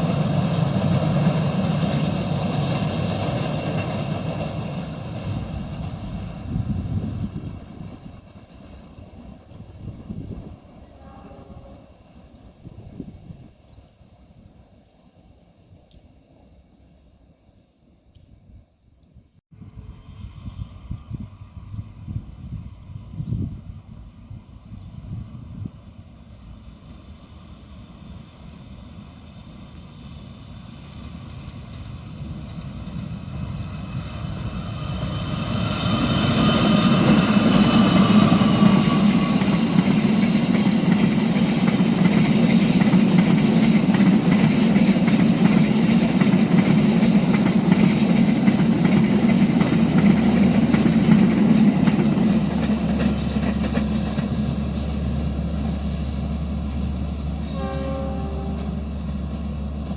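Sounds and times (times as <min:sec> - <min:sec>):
train horn: 0:10.8 - 0:12.1, 0:57.4 - 0:59.3
train carriages clacking over rails: 0:35.1 - 0:59.9.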